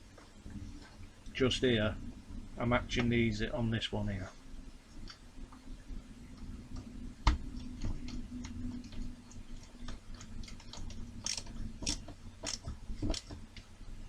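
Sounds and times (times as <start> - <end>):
faint steady hum: 0.0 - 14.0
plastic parts clicking and tapping: 9.6 - 13.7.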